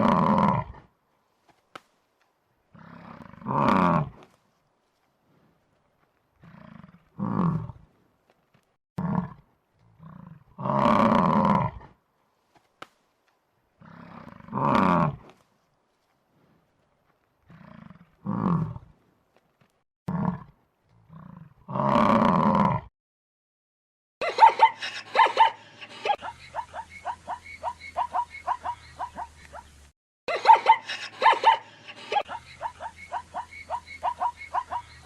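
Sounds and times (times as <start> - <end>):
soft animal call: 31.5 - 35.0.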